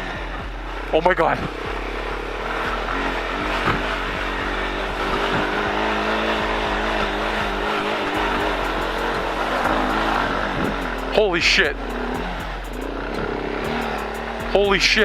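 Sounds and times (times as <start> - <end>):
quad engine revving: 0.0 - 15.0.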